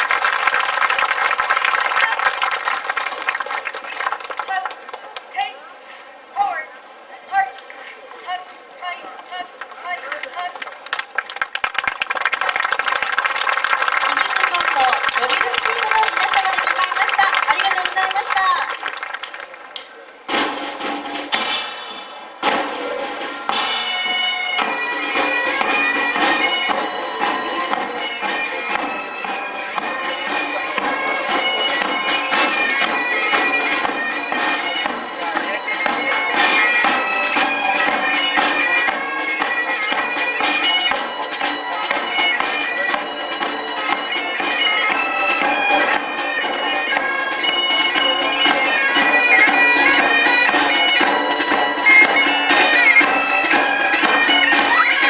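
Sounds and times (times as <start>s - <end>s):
bagpipes playing: 14.0s - 18.6s, 21.9s - 55.0s.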